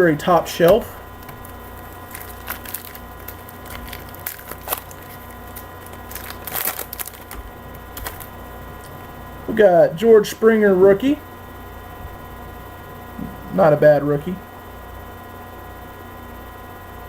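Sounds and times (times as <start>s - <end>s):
electrical hum: 0.0s - 17.0s
card wrapper crinkling: 0.6s - 8.9s
pack being torn open: 1.2s - 8.3s.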